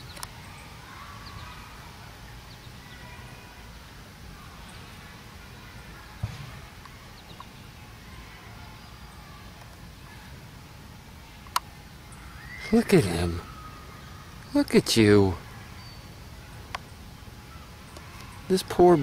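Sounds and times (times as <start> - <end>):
sharp thump: 6.2 - 6.6
faint high chirps: 11.5 - 19.0.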